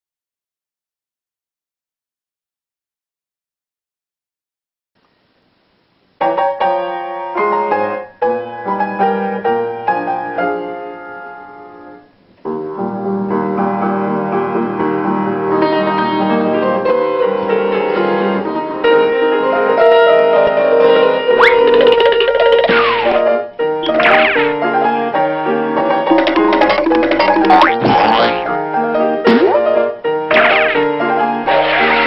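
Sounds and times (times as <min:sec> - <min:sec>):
piano music: 0:12.5 - 0:32.0.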